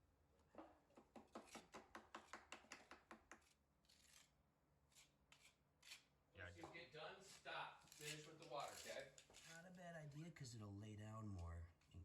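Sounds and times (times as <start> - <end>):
hand trowel scraping mortar: 3.3 - 6.1, 7.2 - 9.6.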